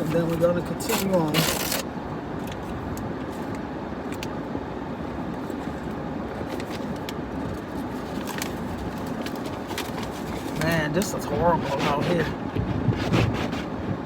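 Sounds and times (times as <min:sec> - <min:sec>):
car cabin road noise: 0:00.0 - 0:14.0.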